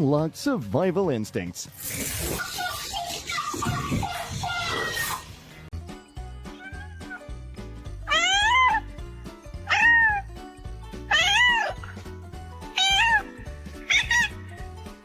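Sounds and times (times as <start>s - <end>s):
background music: 0.0s - 15.0s
cat meowing: 6.5s - 7.3s, 8.1s - 8.9s, 9.6s - 10.3s, 11.1s - 12.0s, 12.7s - 14.5s.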